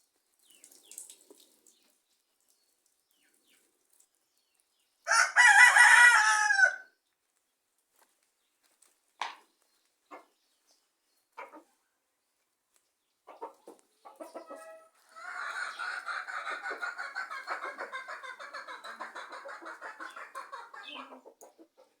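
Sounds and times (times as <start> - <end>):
chickens clucking: 10.1 - 10.4, 11.3 - 11.8, 13.2 - 22.0.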